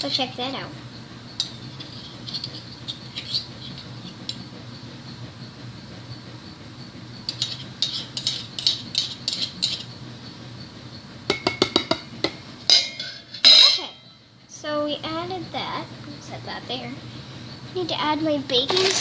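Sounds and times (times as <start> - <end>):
containers clinking on a table: 18.7 - 19.0.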